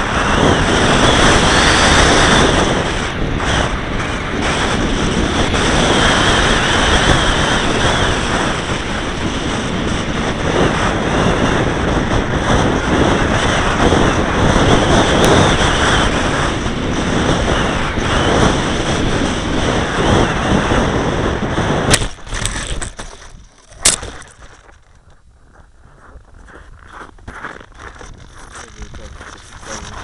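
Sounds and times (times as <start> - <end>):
model aircraft motor running: 0.0 - 25.0
wind buffeting microphone: 0.0 - 30.0.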